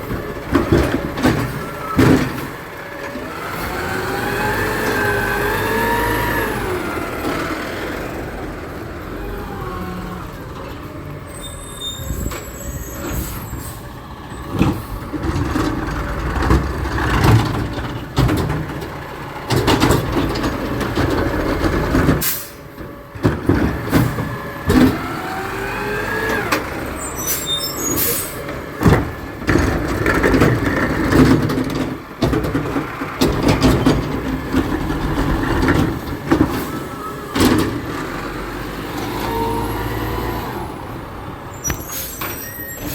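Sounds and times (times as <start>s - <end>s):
garbage truck engine revving: 0.0s - 42.9s
high squeals: 11.3s - 13.8s, 26.8s - 28.4s, 41.5s - 42.9s.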